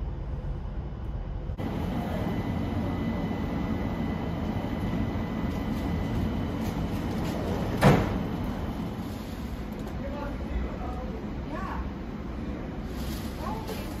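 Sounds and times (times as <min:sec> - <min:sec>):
train rumbling: 0:00.0 - 0:14.0
faint high whine: 0:00.1 - 0:09.8
loud thump: 0:07.7 - 0:08.4.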